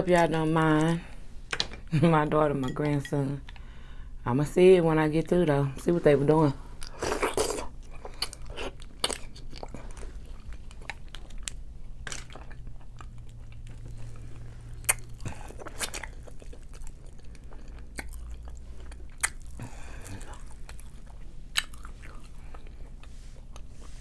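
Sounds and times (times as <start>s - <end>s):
person chewing food: 6.8s - 24.0s.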